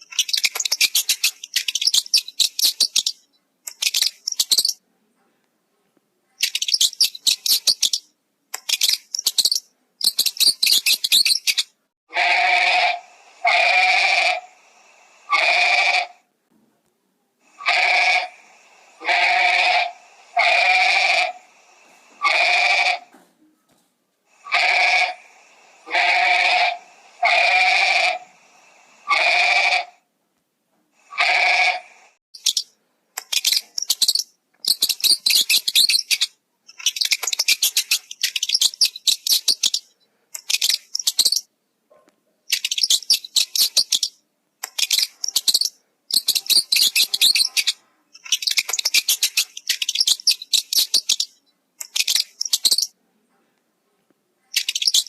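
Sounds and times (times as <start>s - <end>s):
animal bleating: 12.1s - 14.4s, 15.3s - 16.2s, 17.6s - 18.3s, 19.0s - 21.4s, 22.2s - 23.1s, 24.4s - 25.2s, 25.8s - 28.3s, 29.1s - 29.9s, 31.1s - 31.8s
rapid high-pitched clicking chatter: 33.2s - 39.8s, 40.4s - 41.4s, 42.5s - 52.9s.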